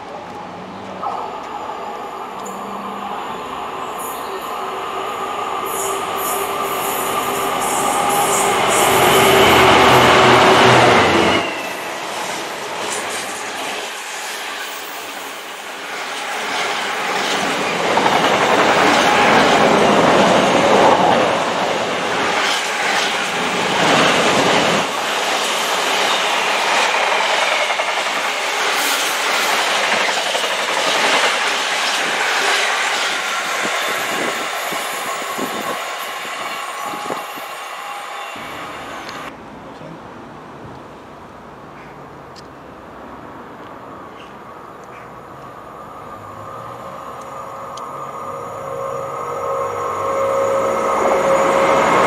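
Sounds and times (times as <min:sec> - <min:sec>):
diesel locomotive passing: 0:00.0 - 0:39.4, 0:42.9 - 0:52.0
train wheels clicking on rails: 0:04.7 - 0:37.7.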